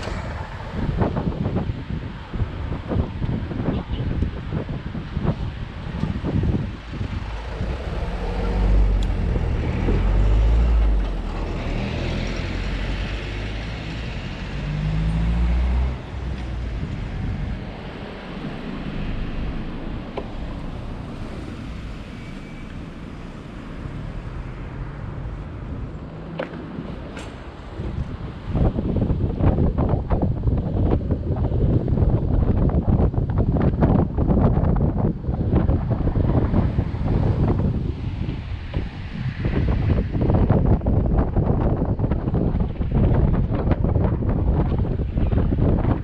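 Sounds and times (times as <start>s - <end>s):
road traffic: 0.0s - 46.0s
wind buffeting microphone: 0.0s - 46.0s.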